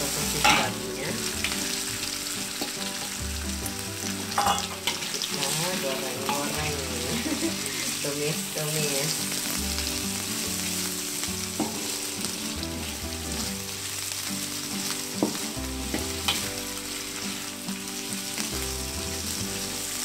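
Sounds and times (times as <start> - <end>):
food sizzling in a wok: 0.0 - 20.0
spatula scraping and stirring: 14.5 - 18.5.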